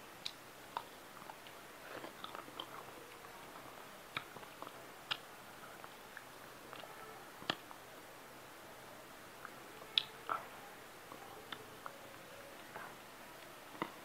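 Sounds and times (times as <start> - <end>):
person chewing wetly: 0.2 - 7.6.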